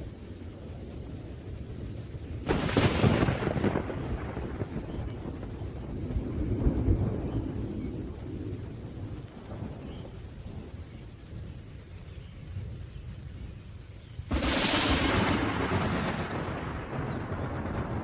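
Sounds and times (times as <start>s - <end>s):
light rain: 0.0s - 18.0s
thunder rumbling: 0.0s - 18.0s.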